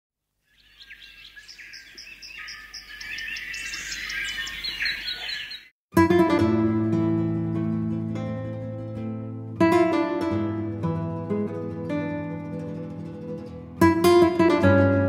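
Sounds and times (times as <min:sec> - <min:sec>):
birds chirping: 0:00.4 - 0:05.7
acoustic guitar music: 0:05.9 - 0:15.0.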